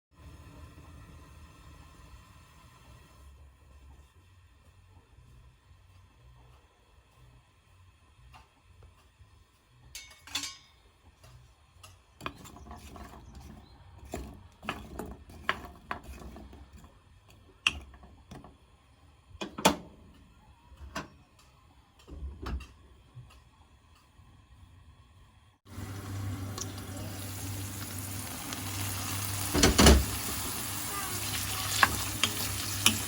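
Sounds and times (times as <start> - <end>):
kitchen utensils clicking and knocking: 9.9 - 16.9, 29.1 - 33.0.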